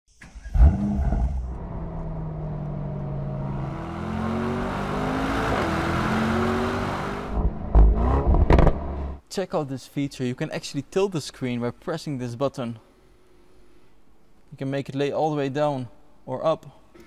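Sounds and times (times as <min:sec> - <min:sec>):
car engine starting and revving: 0:00.2 - 0:09.2.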